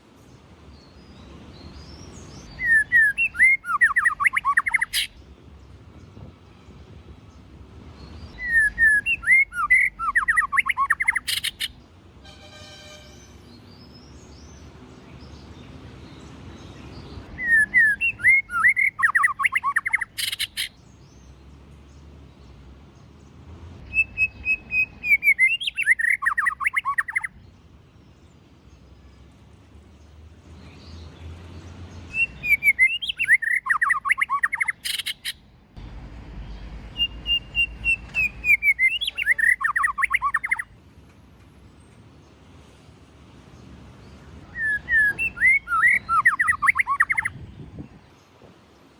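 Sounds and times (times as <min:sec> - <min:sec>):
bird singing whistled phrases: 0:02.5 - 0:05.1, 0:08.4 - 0:11.7, 0:17.4 - 0:20.7, 0:23.8 - 0:27.3, 0:32.1 - 0:35.4, 0:36.9 - 0:40.7, 0:44.5 - 0:47.4.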